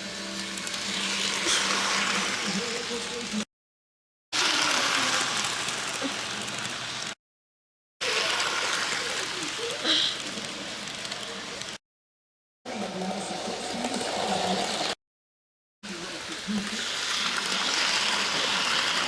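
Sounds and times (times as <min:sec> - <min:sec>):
model train whirring: 0:00.4 - 0:03.4, 0:04.4 - 0:07.2, 0:08.0 - 0:11.8, 0:13.0 - 0:15.0, 0:16.2 - 0:19.0.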